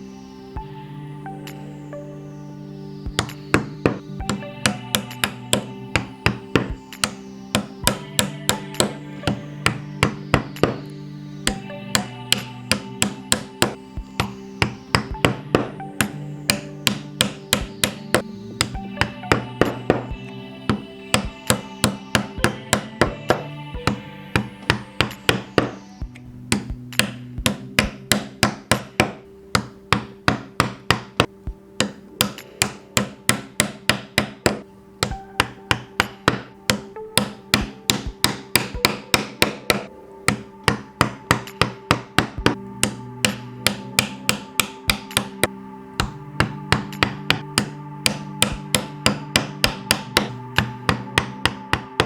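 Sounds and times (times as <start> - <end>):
background music with held chords: 0.0 - 52.0.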